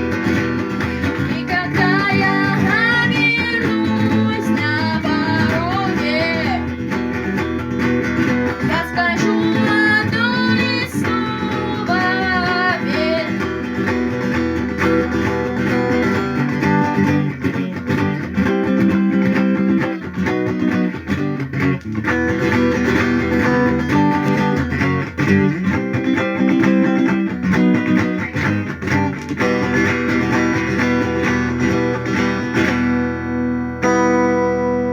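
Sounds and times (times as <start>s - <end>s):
acoustic guitar strumming: 0.0s - 34.9s
person singing: 0.8s - 7.0s, 8.4s - 14.4s.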